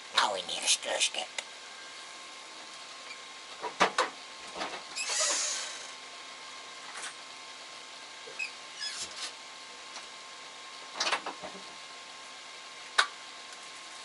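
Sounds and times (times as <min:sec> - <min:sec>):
faint hum: 0:00.0 - 0:03.5, 0:04.3 - 0:08.7.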